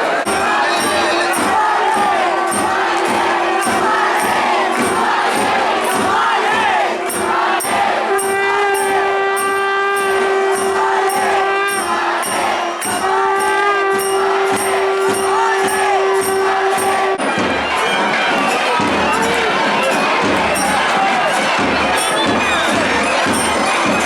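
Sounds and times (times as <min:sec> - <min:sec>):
crowd murmuring: 0:00.0 - 0:24.0
drum beat: 0:00.0 - 0:24.0
reed horn long notes: 0:00.0 - 0:24.0
small hand cymbals: 0:07.0 - 0:24.0.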